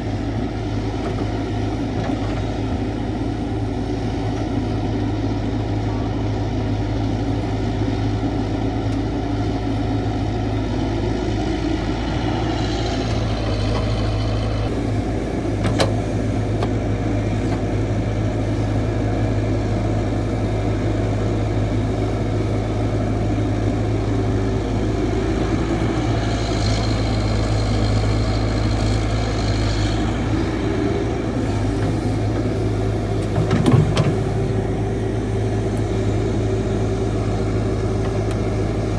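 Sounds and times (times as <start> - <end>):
diesel engine running: 0.0 - 38.9
hydraulic whine: 22.6 - 38.9.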